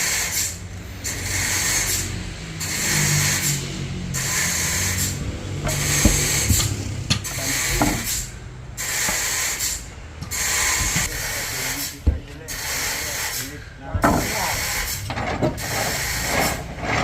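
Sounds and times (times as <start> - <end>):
saw hissing through log: 0.0 - 16.9
sharp knocks: 4.2 - 8.3, 10.2 - 11.1, 13.9 - 15.7.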